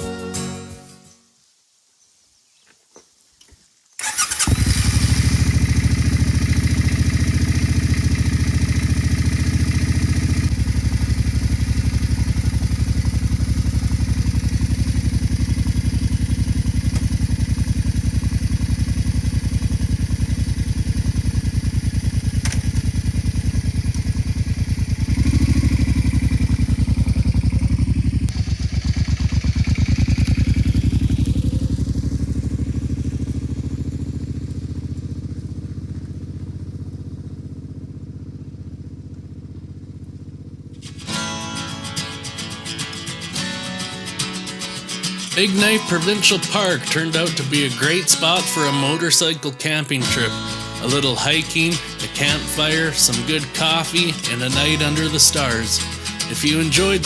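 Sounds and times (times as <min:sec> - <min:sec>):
motorcycle engine starting and running: 0:04.0 - 0:57.0.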